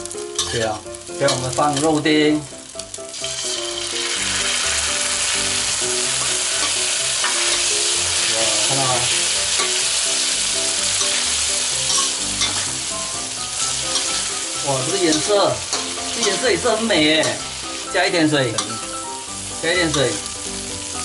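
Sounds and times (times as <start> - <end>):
food sizzling in a wok: 0.0 - 21.0
spatula stirring in wok: 8.7 - 18.9.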